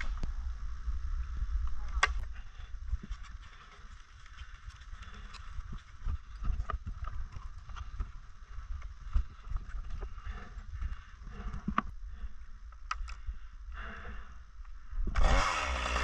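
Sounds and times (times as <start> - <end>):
low microphone rumble: 0.0 - 4.0.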